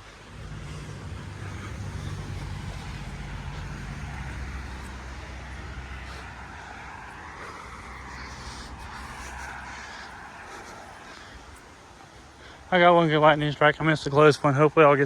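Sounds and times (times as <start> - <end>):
vehicle engine humming: 0.0 - 13.2
constant hiss: 0.0 - 15.0.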